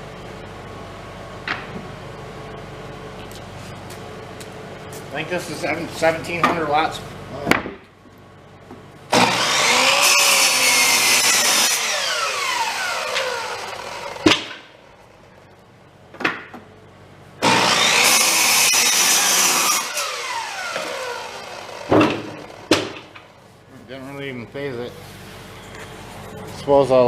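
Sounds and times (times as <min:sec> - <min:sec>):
electric saw motor whining: 0:09.1 - 0:15.0, 0:17.4 - 0:22.8
sharp knocks: 0:14.2 - 0:14.7, 0:21.9 - 0:23.3.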